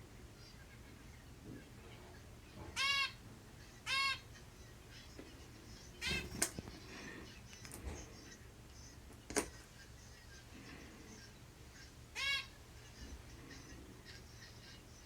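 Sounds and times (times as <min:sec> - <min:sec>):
finch honking calls: 0:02.6 - 0:05.1, 0:06.0 - 0:06.4, 0:11.7 - 0:14.9.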